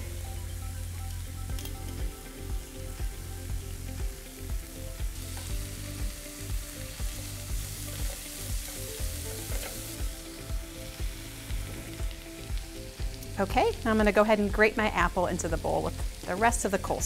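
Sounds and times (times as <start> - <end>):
background music with steady beat: 0.0 - 17.0
chicken sizzling on grill pan: 3.4 - 17.0.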